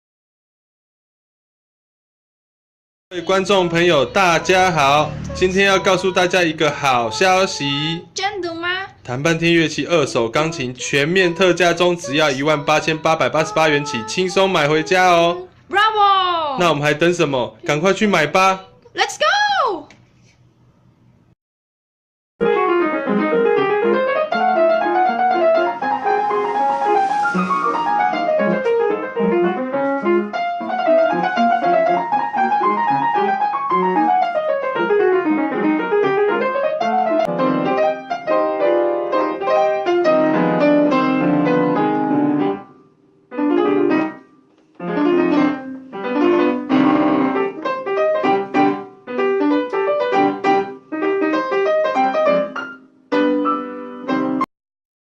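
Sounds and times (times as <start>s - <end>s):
piano playing: 3.1s - 8.4s, 9.0s - 15.6s, 16.6s - 18.9s, 22.4s - 54.5s.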